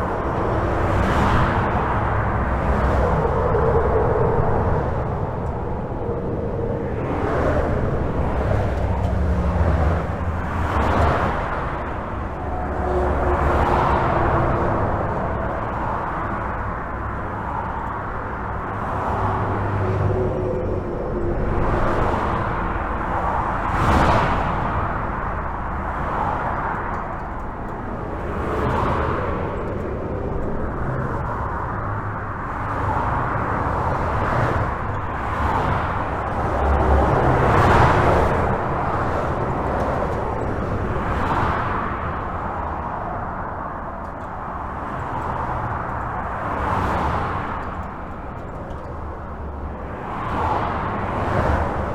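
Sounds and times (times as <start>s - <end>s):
highway traffic rushing: 0.0s - 51.9s
vehicles passing: 0.0s - 51.9s.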